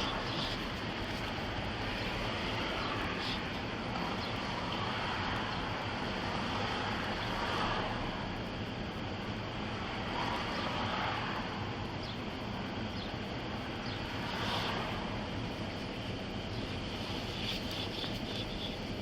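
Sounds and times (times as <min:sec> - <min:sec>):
road traffic noise: 0:00.0 - 0:19.0
vehicles passing: 0:00.0 - 0:19.0.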